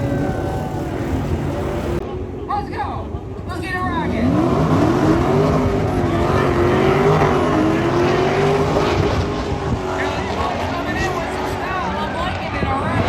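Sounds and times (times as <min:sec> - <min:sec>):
car engine revving hard: 0:04.1 - 0:12.1.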